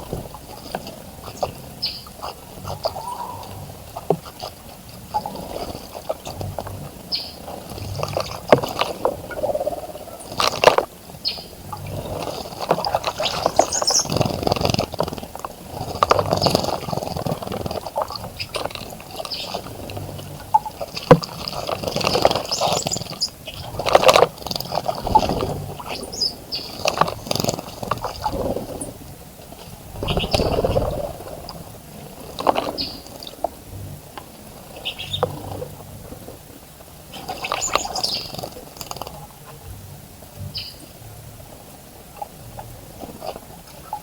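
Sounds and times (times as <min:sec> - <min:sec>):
birds splashing in water: 0:00.0 - 0:39.6
high bird chirps: 0:13.2 - 0:14.2.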